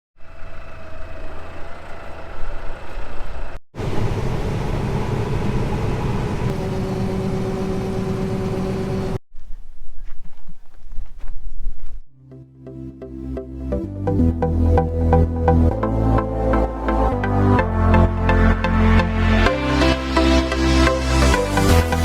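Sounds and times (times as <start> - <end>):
farm machinery engines running: 0.3 - 9.2.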